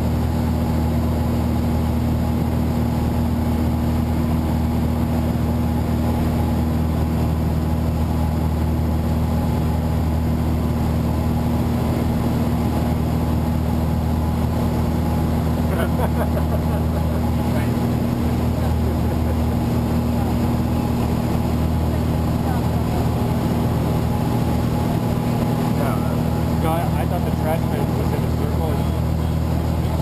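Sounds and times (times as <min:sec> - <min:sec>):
propeller aircraft engine droning: 0:00.0 - 0:30.0.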